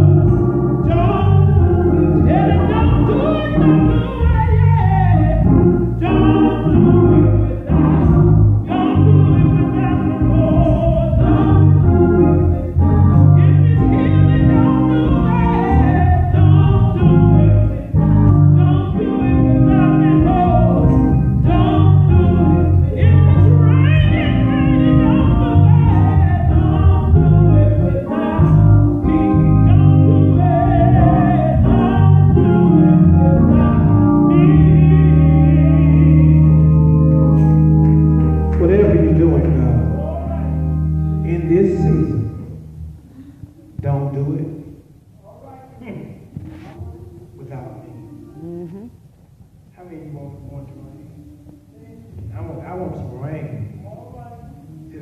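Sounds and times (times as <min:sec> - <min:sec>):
steady bass: 0:00.0 - 0:42.8
organ: 0:00.0 - 0:43.0
gospel singing: 0:00.0 - 0:48.9.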